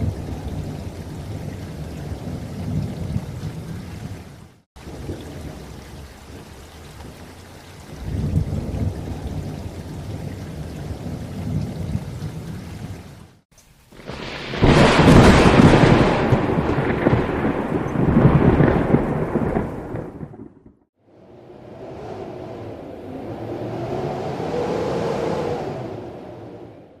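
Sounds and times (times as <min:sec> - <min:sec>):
thunder rumbling: 0:00.0 - 0:13.2, 0:13.9 - 0:26.8
rain falling: 0:00.0 - 0:26.8
loud thunderclap: 0:13.9 - 0:20.9.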